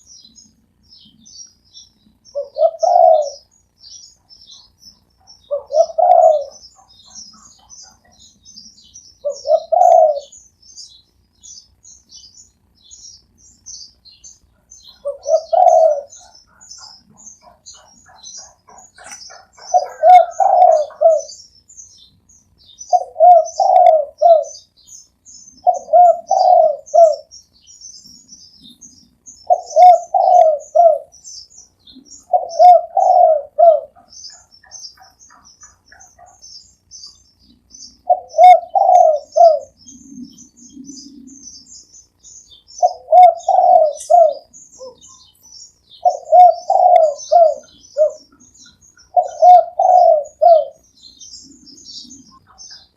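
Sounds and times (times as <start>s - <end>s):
small birds chirping: 0.0s - 52.9s
dove cooing: 2.3s - 10.4s, 14.5s - 21.4s, 22.8s - 24.7s, 25.6s - 27.3s, 29.4s - 41.9s, 42.7s - 52.9s.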